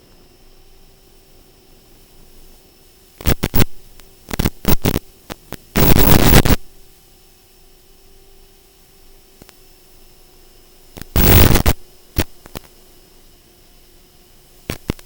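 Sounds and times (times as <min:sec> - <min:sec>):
low hiss with faint hum: 0:00.0 - 0:15.0
static crackling bursts: 0:03.2 - 0:06.8, 0:11.0 - 0:12.7, 0:14.7 - 0:15.0.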